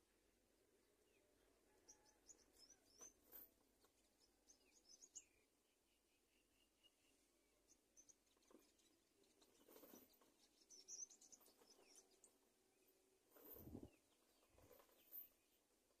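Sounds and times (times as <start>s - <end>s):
faint high bird chirps: 0.7s - 15.6s.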